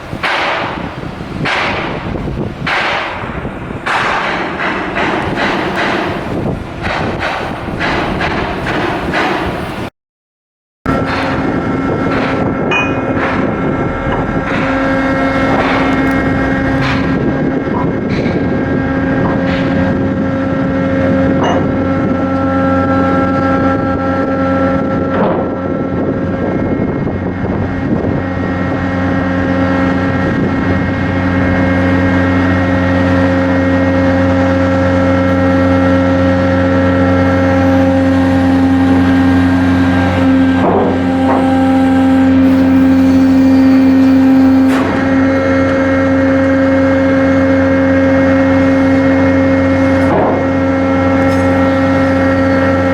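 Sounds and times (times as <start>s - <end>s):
ship diesel machinery humming: 0.0s - 9.9s, 10.9s - 52.9s
scattered knocks: 1.4s - 9.5s, 12.1s - 18.5s.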